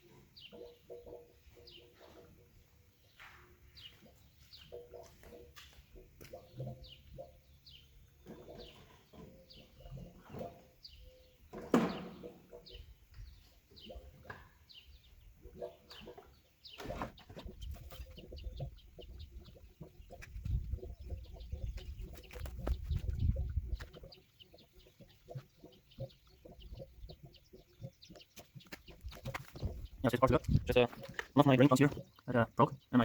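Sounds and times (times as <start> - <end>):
chickens clucking: 15.4 - 33.0.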